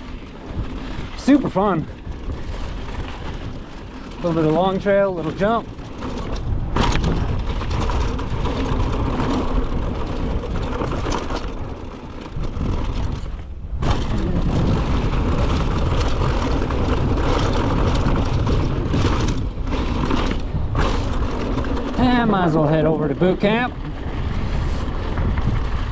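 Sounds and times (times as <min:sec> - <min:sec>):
bike rattling: 0:00.0 - 0:25.9
bike tyre noise: 0:00.0 - 0:25.9
wind on microphone: 0:00.0 - 0:25.9.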